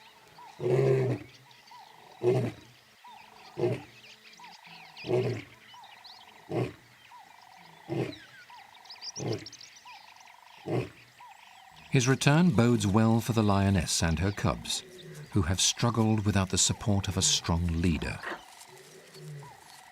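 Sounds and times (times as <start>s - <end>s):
lion roaring: 5.0s - 5.5s.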